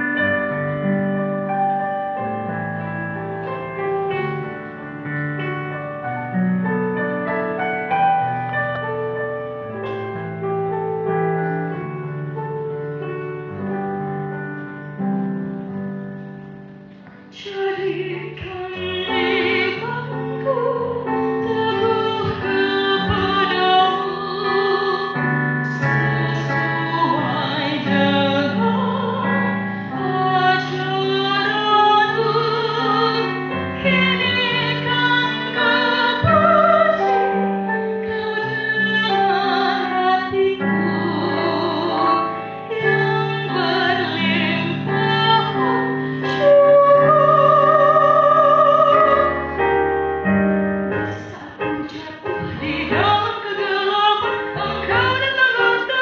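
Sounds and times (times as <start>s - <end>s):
keyboard accompaniment: 0.0s - 56.0s
woman singing with vibrato: 17.4s - 37.3s, 38.0s - 49.4s, 51.1s - 56.0s.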